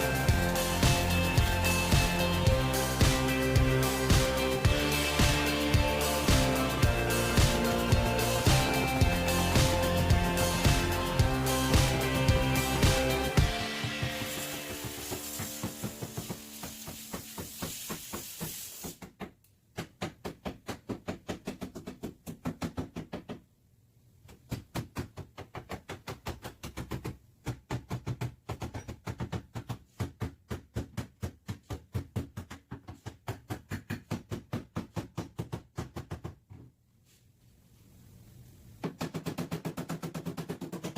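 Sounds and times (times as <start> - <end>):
steady hiss: 13.2 - 19.0.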